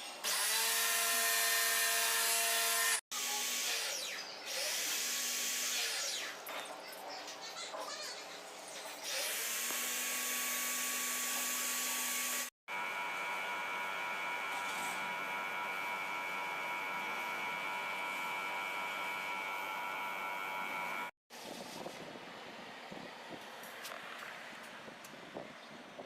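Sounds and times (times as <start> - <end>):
motor humming with high whine: 9.6 - 21.1.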